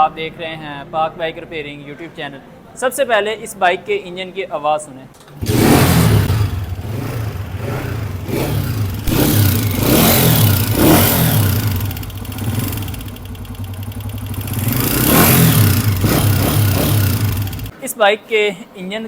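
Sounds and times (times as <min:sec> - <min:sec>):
motorcycle engine running and blipped: 0:05.4 - 0:17.7
ticking tappet clatter: 0:09.0 - 0:17.7.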